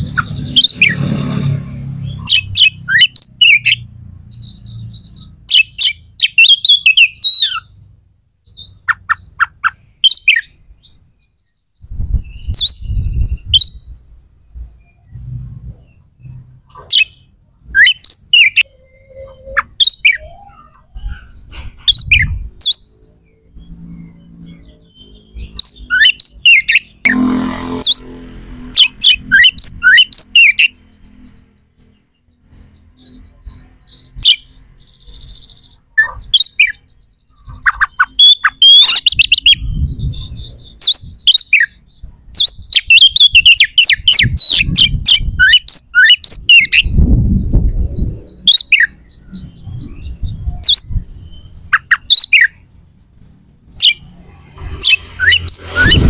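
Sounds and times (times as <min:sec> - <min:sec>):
bird chirping loudly: 0:00.0 - 0:56.0
low rumbles: 0:46.8 - 0:51.7.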